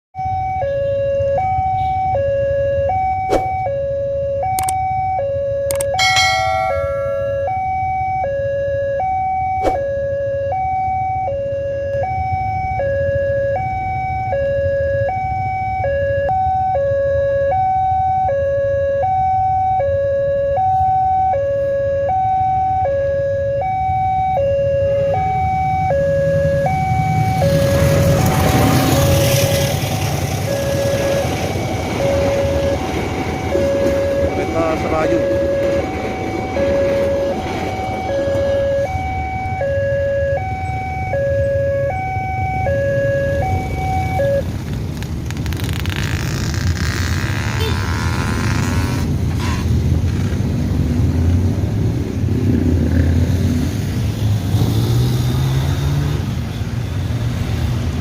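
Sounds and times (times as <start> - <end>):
level-crossing two-tone alarm: 0.2 - 44.5
low rumble of traffic: 0.2 - 58.0
approaching train rushing: 25.7 - 39.6.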